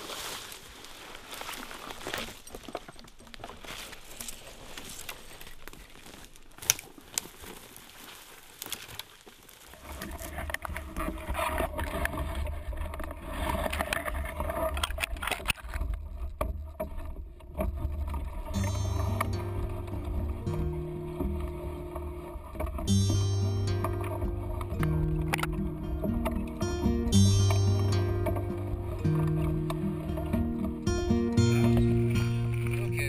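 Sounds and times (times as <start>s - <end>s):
footsteps in undergrowth: 0.0s - 14.6s, 18.5s - 32.9s
twigs crackling underfoot: 0.0s - 16.4s, 18.5s - 33.0s
steady low rumble: 17.2s - 33.0s.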